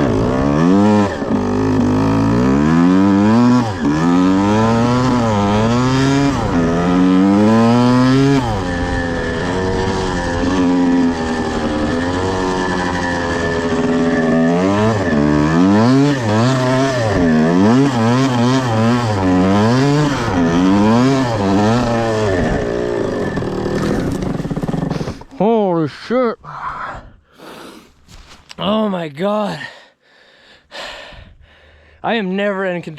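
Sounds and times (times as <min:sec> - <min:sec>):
dirt bike engine revving: 0:00.0 - 0:25.4.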